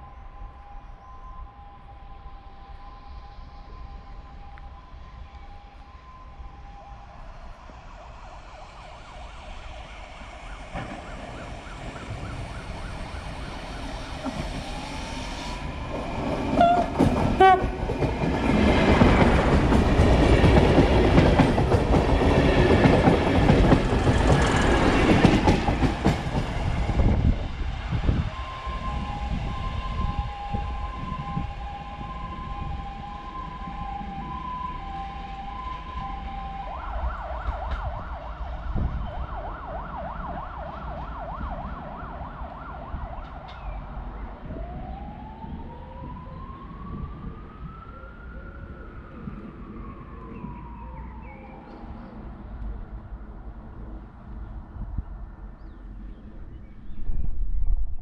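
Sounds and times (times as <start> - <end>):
train rumbling and clattering past: 7.6 - 47.9
train horn blast: 16.5 - 17.9.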